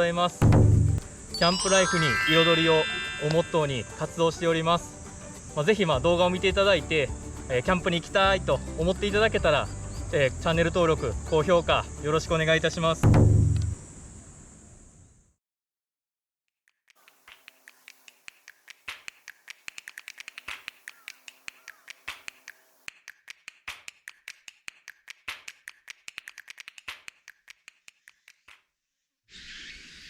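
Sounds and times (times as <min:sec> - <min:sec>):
sharp clicks and snaps: 0:16.7 - 0:28.7.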